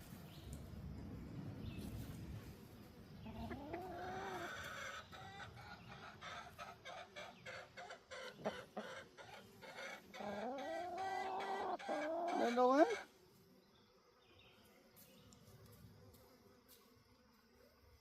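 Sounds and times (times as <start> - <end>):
chickens clucking: 3.2 - 13.1.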